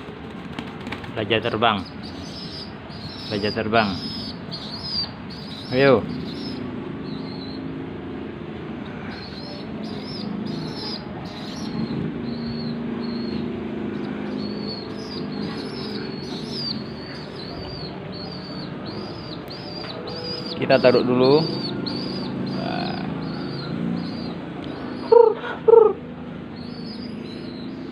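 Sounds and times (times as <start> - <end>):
bird chirping high notes: 9.2 - 25.4.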